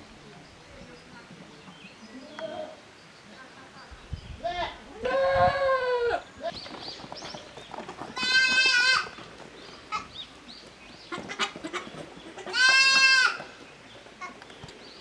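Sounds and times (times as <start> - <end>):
goat bleating: 4.4 - 6.3, 8.1 - 9.2, 11.2 - 13.5.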